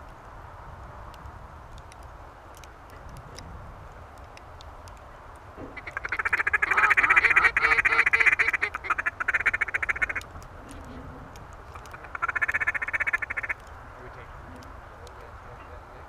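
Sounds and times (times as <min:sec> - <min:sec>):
duck calls quacking chatter: 0:05.6 - 0:16.0.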